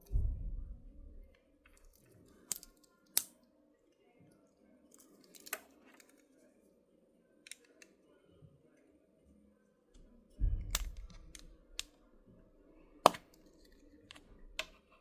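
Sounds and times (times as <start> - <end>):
pocket knife clicking on plastic: 2.4 - 3.4, 13.1 - 13.4.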